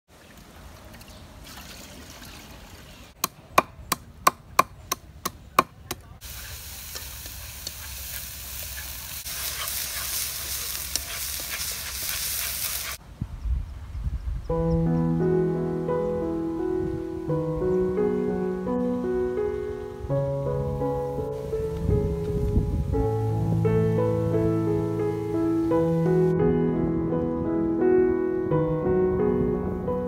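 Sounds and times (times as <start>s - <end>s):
food sizzling in a wok: 6.2s - 13.0s.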